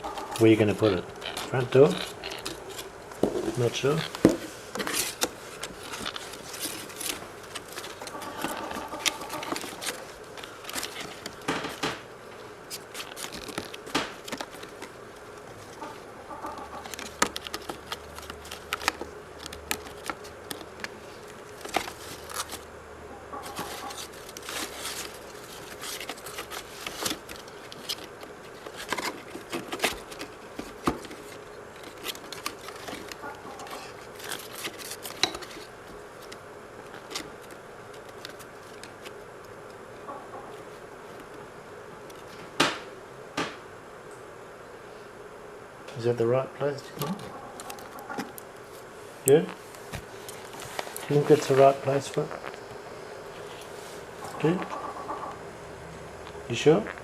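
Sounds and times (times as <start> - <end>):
card rustling and scraping: 0.0 - 22.7, 23.4 - 39.3, 46.9 - 55.4.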